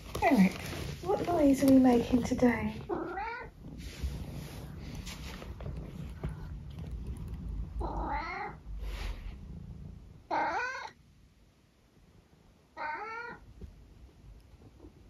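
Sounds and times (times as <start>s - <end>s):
cat meowing: 2.9s - 3.5s, 7.8s - 8.6s, 10.3s - 11.0s, 12.8s - 13.4s.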